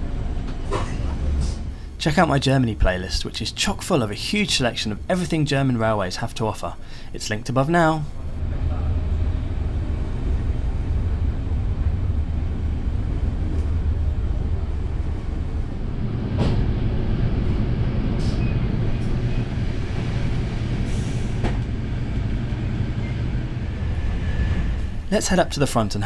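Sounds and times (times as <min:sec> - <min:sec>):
train low rumble: 0:00.0 - 0:26.0.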